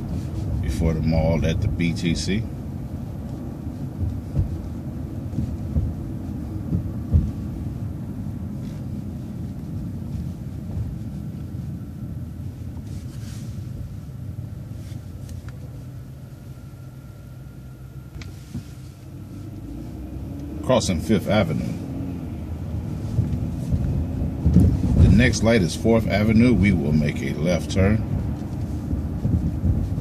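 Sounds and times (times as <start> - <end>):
road rumble inside vehicle: 0.0 - 30.0.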